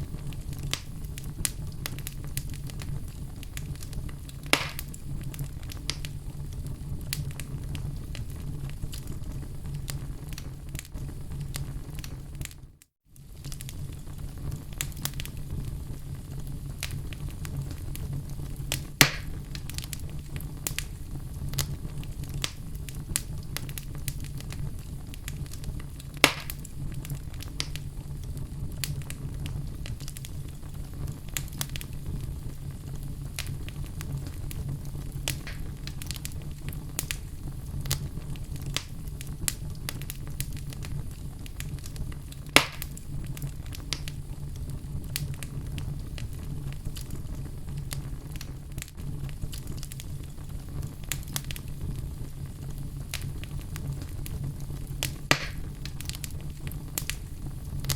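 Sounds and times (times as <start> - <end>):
loud fire pops: 0.0 - 12.6, 13.2 - 57.9
fire crackling: 0.0 - 57.9.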